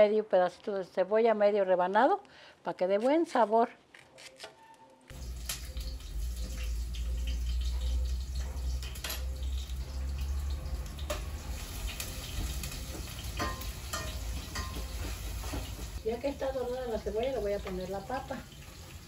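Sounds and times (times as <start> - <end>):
onion sizzling in hot oil: 5.1 - 19.0.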